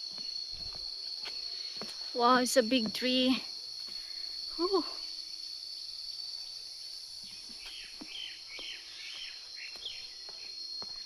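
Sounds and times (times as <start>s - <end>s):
high-pitched insect chorus: 0.0s - 11.0s
bird chirping: 7.2s - 10.4s.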